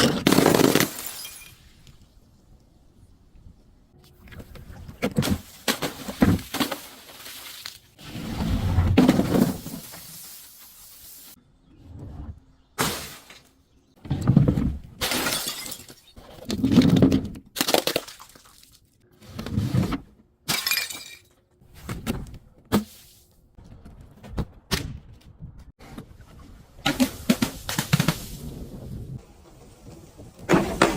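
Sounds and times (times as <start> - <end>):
glass bottles shattering: 0.1 - 1.9, 15.0 - 16.3, 20.5 - 21.4.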